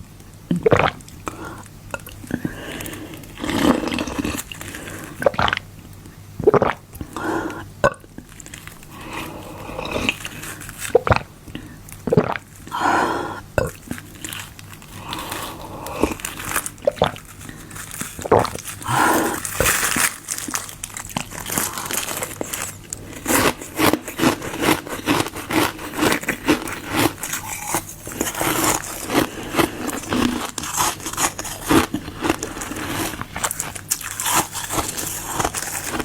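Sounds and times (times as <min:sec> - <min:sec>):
wet chewing sounds: 0:13.6 - 0:36.0
ice crunching: 0:13.8 - 0:36.0.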